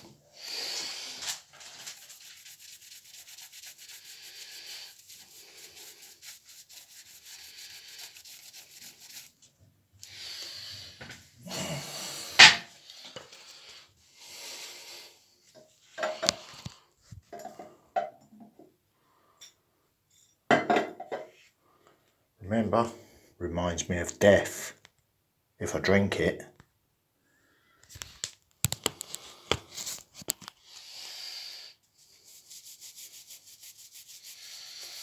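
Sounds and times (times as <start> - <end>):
close rubbing and scratching: 0.0 - 11.0, 27.9 - 31.4, 32.0 - 35.0.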